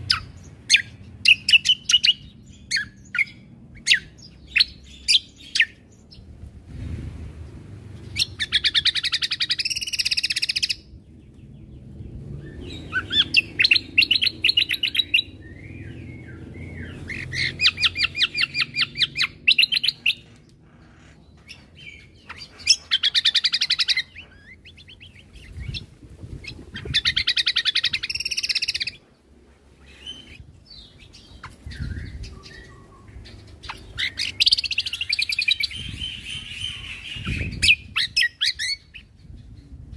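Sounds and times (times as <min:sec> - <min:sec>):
faint low rumble: 0:00.0 - 0:09.2
soft bird calls: 0:07.4 - 0:39.9.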